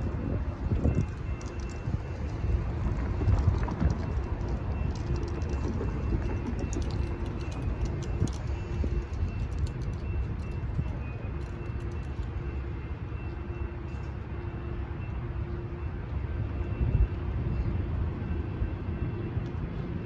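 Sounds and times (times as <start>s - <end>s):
train rumbling: 0.0s - 13.1s
wheels clicking on rails: 0.2s - 12.4s.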